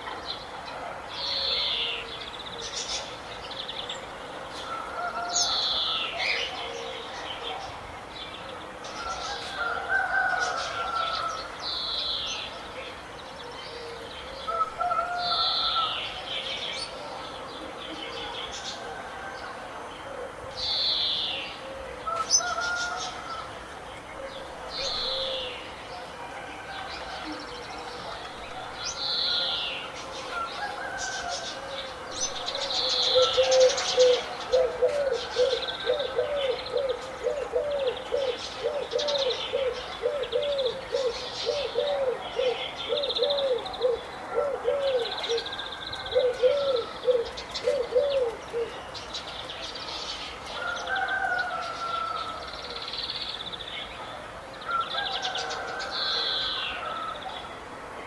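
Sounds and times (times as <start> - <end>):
low repeated bird call: 20.0 - 49.2.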